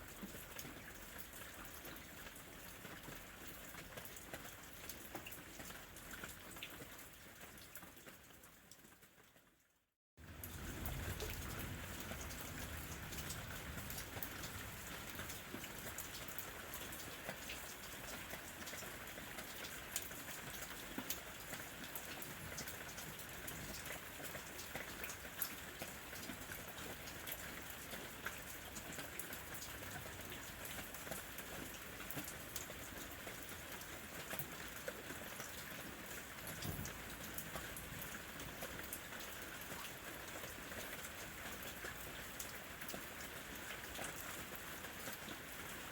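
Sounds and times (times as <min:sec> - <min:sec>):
steady rain: 0:00.0 - 0:09.5, 0:10.2 - 0:45.9
raindrops ticking: 0:10.2 - 0:45.8.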